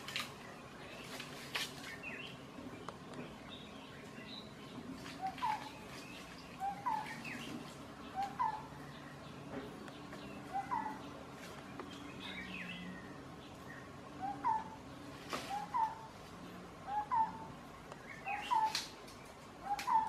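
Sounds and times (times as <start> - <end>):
faint bird chirps: 0.3 - 20.0.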